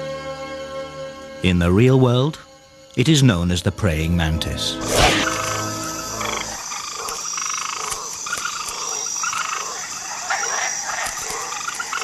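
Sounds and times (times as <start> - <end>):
frogs croaking: 5.2 - 12.0.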